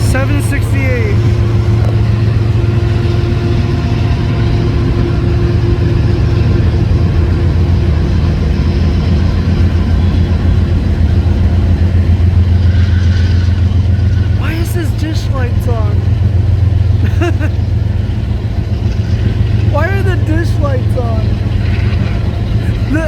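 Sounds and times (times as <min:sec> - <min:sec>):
diesel locomotive engine drone: 0:00.0 - 0:23.0.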